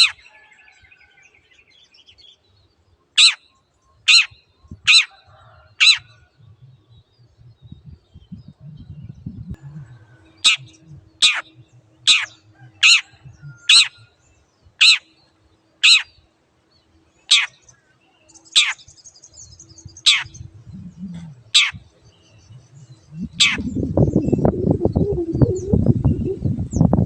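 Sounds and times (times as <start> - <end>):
low rumbling noise: 6.4 - 12.5, 19.9 - 27.0
bird harsh down-slurred calls: 9.6 - 14.0, 20.0 - 21.9, 22.8 - 26.8.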